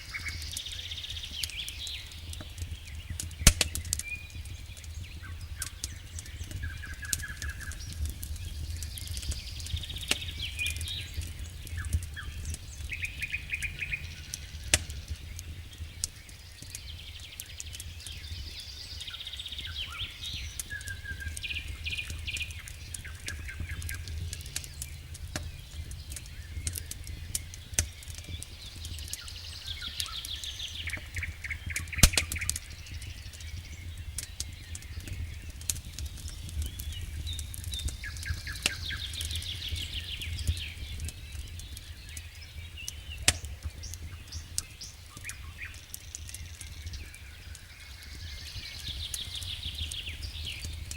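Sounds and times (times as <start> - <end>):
wood fire crackling: 0.0 - 50.9
sharp pops of fire: 0.1 - 50.9
steady low rumble: 4.9 - 17.0, 21.1 - 30.7.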